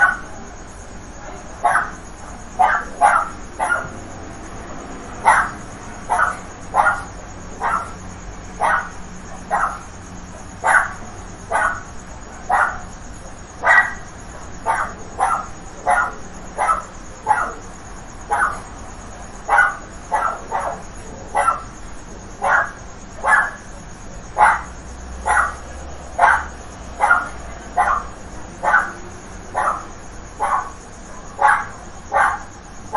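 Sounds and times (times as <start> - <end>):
dog barking: 0.0 - 0.3, 1.6 - 2.0, 2.6 - 4.0, 5.2 - 8.0, 8.6 - 9.9, 10.6 - 12.9, 13.6 - 14.0, 14.6 - 17.7, 18.3 - 18.7, 19.4 - 21.7, 22.4 - 23.6, 24.4 - 25.6, 26.2 - 29.0, 29.6 - 32.5.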